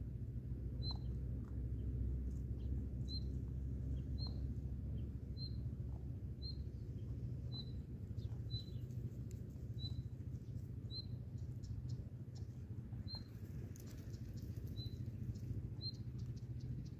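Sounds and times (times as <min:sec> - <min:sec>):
small bird chirping: 0:00.8 - 0:16.9.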